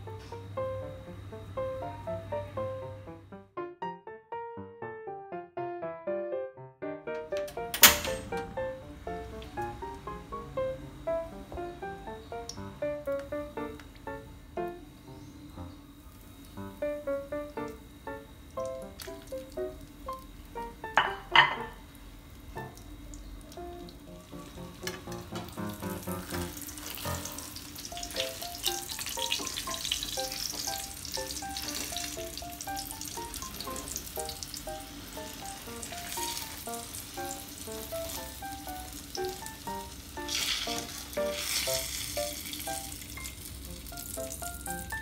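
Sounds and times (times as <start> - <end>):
food sizzling in hot oil: 22.6 - 45.0.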